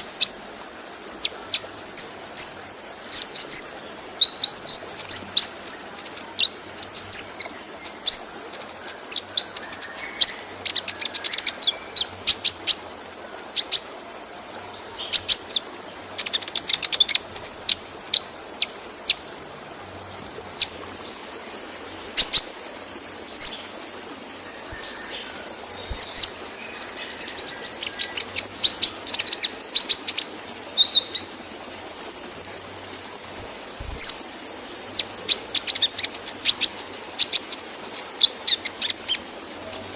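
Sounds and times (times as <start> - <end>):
waterfall rushing: 0.0 - 39.9
bird chirping and trilling: 1.2 - 12.9, 13.5 - 13.9, 14.7 - 19.3, 24.5 - 31.4, 34.9 - 39.9.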